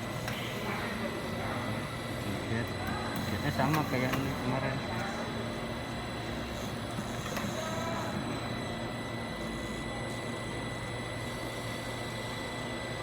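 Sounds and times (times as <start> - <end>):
workshop machinery hum: 0.0 - 13.0.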